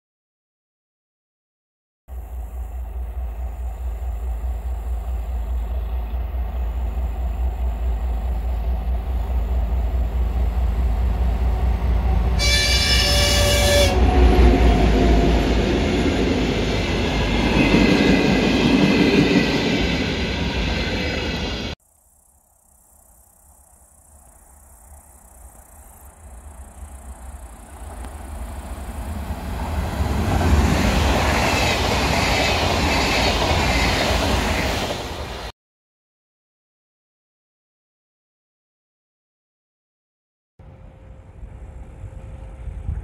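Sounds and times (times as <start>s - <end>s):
train rumbling: 2.1s - 21.8s, 24.9s - 35.5s, 40.6s - 43.0s
train horn blast: 12.0s - 15.6s.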